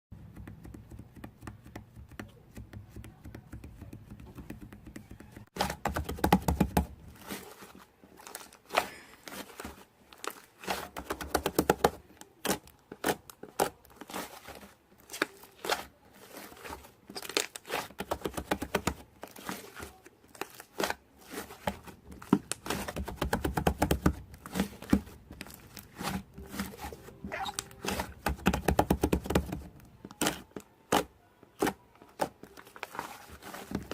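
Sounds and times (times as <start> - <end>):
slime squished by hand: 27.3 - 28.3.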